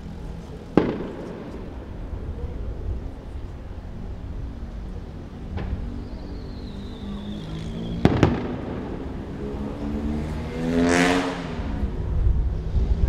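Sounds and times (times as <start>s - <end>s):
wind rumble on microphone: 0.0s - 10.6s, 11.4s - 13.0s
firework bursts cracking: 0.7s - 2.4s, 7.7s - 9.7s.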